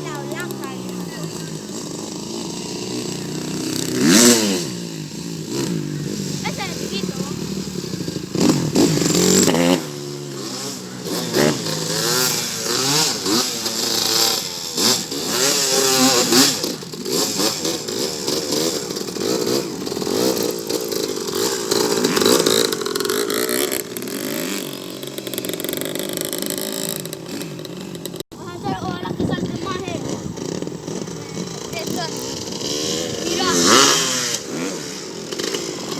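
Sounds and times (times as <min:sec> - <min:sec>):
dirt bike engines revving: 0:00.0 - 0:35.9.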